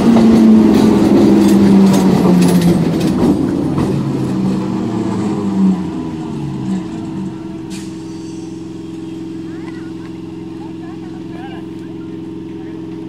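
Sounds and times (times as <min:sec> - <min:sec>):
train wheels clattering over rail joints: 0:00.0 - 0:07.4.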